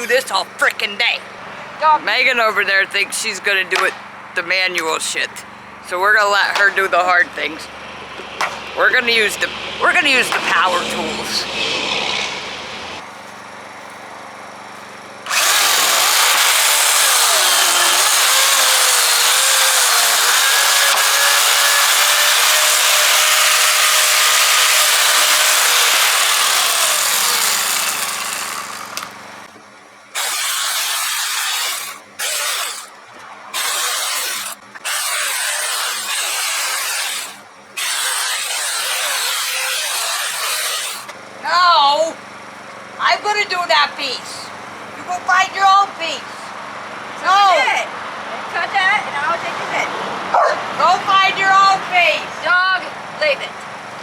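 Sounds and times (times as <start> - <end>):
electric chainsaw cutting wood: 15.3 - 29.2, 30.1 - 41.2.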